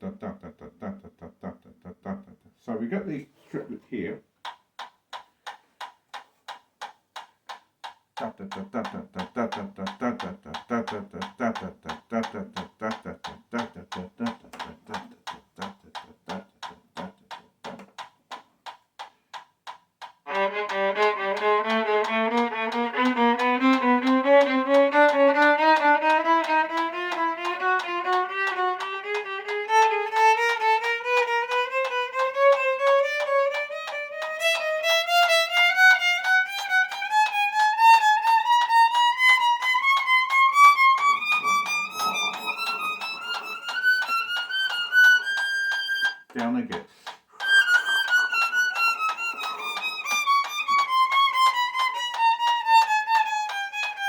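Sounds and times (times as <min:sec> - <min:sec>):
metronome ticking: 0:03.8 - 0:54.0
violin playing rising run: 0:20.3 - 0:46.2, 0:47.4 - 0:54.0.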